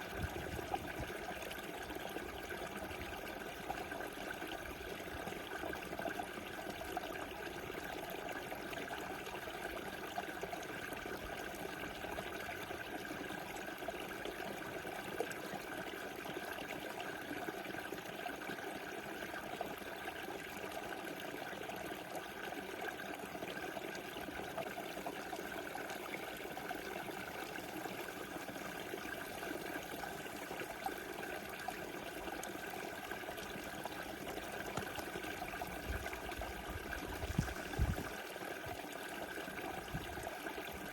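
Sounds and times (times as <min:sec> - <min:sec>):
river babbling over stones: 0:25.5 - 0:40.9.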